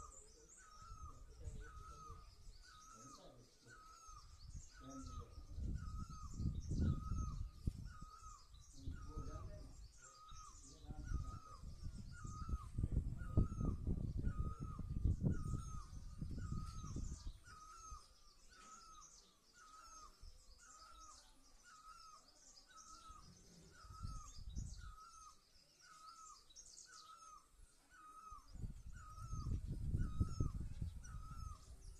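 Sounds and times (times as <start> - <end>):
faint high chirping: 0.0 - 31.9.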